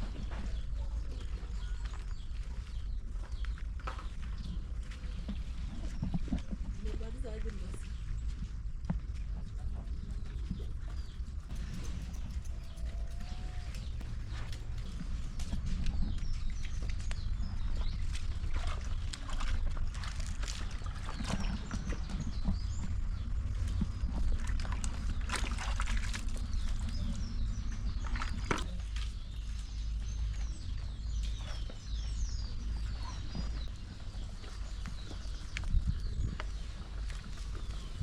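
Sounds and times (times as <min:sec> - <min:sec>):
steady low rumble: 0:00.0 - 0:38.0
birds chirping: 0:09.4 - 0:18.5, 0:26.2 - 0:38.0.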